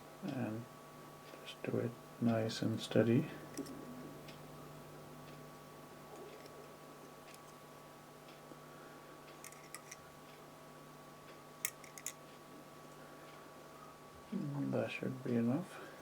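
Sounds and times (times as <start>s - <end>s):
steady low hum: 0.0s - 16.0s
small tools clicking: 9.4s - 10.0s, 11.6s - 12.2s.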